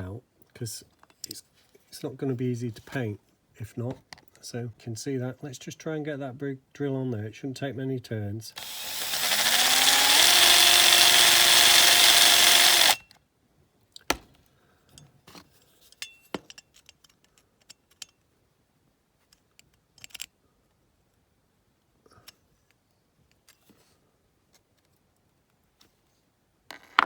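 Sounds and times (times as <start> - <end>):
electric drill motor: 8.6 - 13.0.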